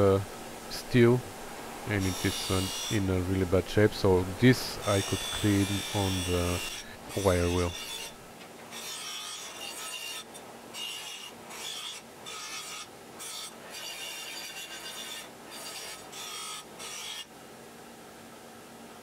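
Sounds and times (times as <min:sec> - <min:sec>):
wire wheel rasping on metal: 0:01.9 - 0:03.2, 0:04.5 - 0:17.2.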